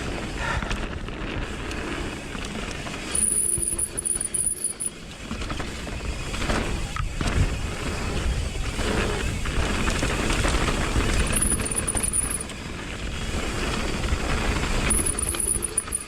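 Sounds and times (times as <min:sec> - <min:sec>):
bike tyres and wind rumble: 0:00.0 - 0:16.0
disc brakes squealing: 0:03.1 - 0:05.0, 0:11.2 - 0:12.5, 0:14.9 - 0:16.0.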